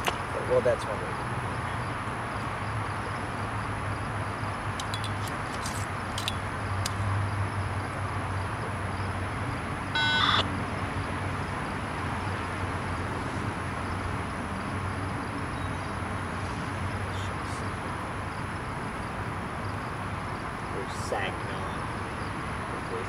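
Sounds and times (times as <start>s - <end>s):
city traffic noise: 0.0s - 23.0s.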